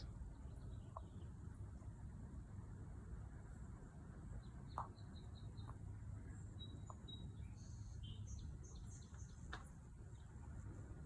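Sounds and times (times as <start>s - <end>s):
small birds chirping: 4.3s - 10.3s.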